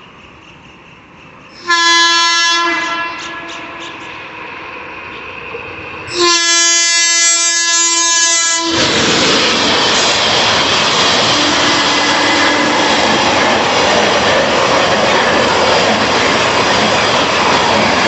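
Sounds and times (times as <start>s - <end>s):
train rushing rumble: 0.0s - 18.0s
locomotive horn blast: 1.6s - 4.0s, 6.1s - 8.9s, 11.3s - 12.8s.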